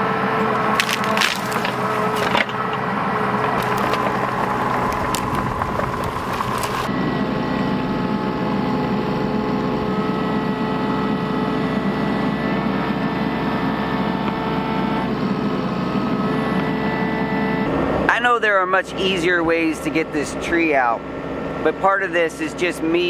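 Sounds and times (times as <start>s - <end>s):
steady whine: 0.0s - 9.8s
excavator diesel engine running: 0.0s - 13.3s.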